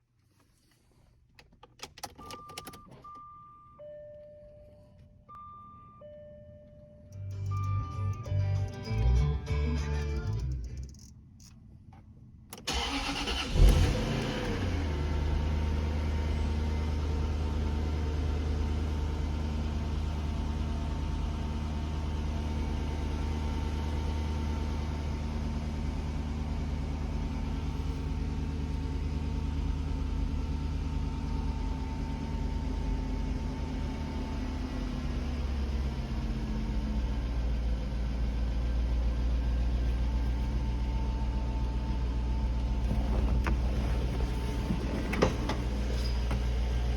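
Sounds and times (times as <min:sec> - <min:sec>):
engine cranking: 0:12.5 - 0:14.6
engine idling: 0:12.7 - 0:46.9.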